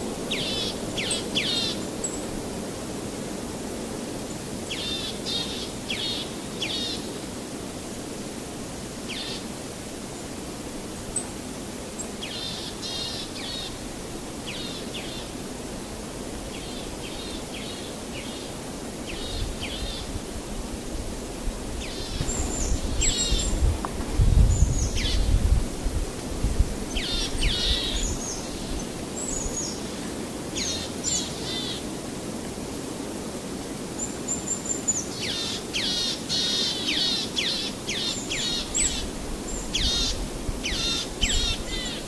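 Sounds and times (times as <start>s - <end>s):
steady background hiss: 0.0s - 42.0s
small birds chirping: 21.8s - 23.7s, 26.9s - 30.0s.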